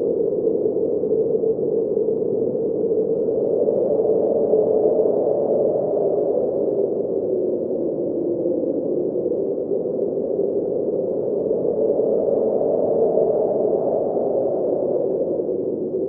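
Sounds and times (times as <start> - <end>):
snowstorm wind blowing: 0.0 - 16.0.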